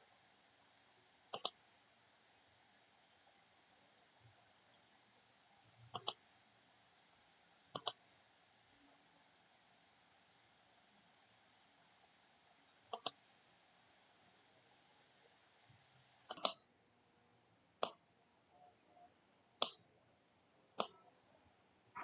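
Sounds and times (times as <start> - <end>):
faint steady hiss: 0.0 - 22.0
sharp clicks: 1.4 - 1.6, 6.0 - 6.2, 7.8 - 8.0, 12.9 - 13.2, 16.3 - 16.6, 19.6 - 19.8, 20.8 - 21.0.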